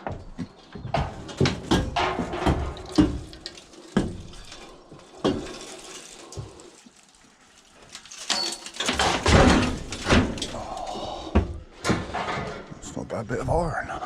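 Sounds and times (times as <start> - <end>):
scrap metal knocks: 0.0 - 6.8, 7.9 - 12.8
scrap metal scraping clatter: 1.1 - 11.2, 11.8 - 12.8.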